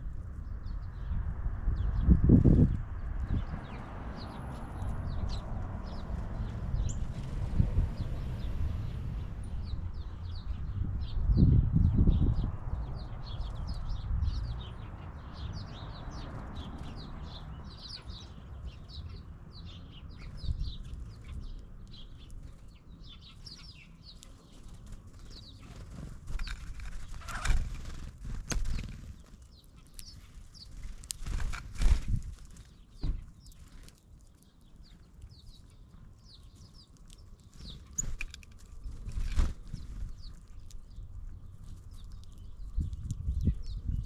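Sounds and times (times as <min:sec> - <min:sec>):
small birds chirping: 0:00.0 - 0:44.0
low rumble: 0:00.7 - 0:14.7.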